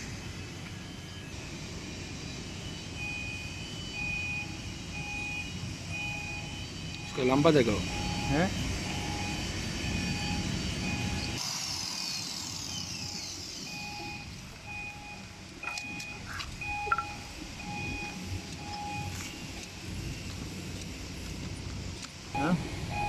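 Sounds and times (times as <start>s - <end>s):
electronic beeper beeping: 2.1s - 11.4s, 13.0s - 19.5s.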